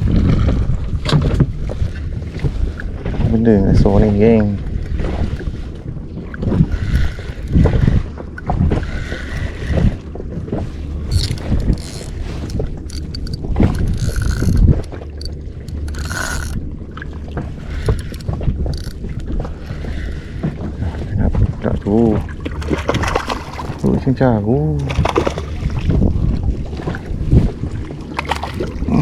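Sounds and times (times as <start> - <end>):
knocks and rustling on inflatable boat: 0.0 - 29.0
fishing reel ratchet clicking: 6.7 - 7.6, 11.0 - 16.6, 17.7 - 19.9.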